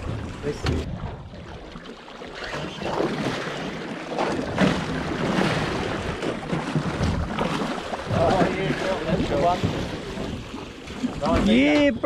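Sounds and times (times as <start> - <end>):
water sloshing against boat hull: 0.0 - 12.0.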